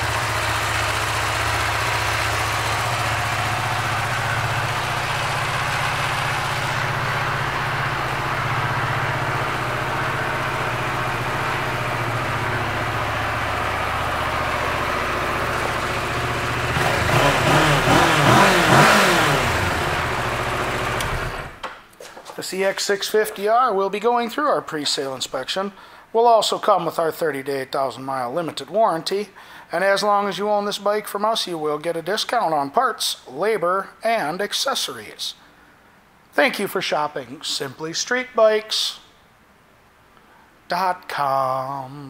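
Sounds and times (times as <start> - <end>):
motorcycle engine idling and revving: 0.0 - 21.6.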